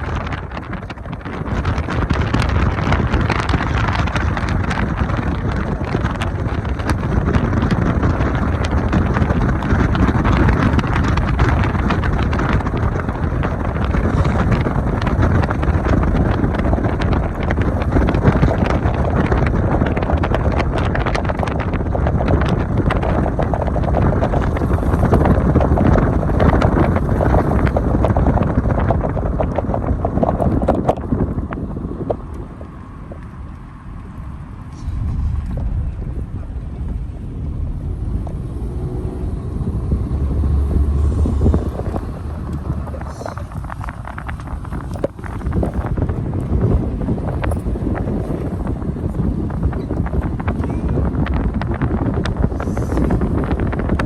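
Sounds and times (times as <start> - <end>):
wind rumble on microphone: 0.0 - 54.0.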